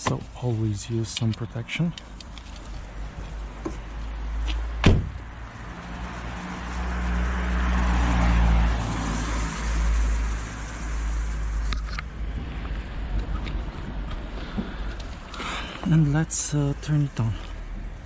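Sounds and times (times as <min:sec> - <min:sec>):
vehicle passing by: 0:04.2 - 0:14.8.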